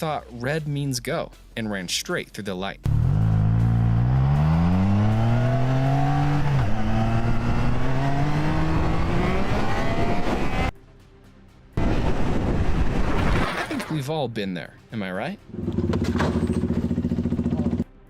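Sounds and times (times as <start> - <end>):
motorcycle engine accelerating: 2.9 - 10.7, 15.5 - 17.8.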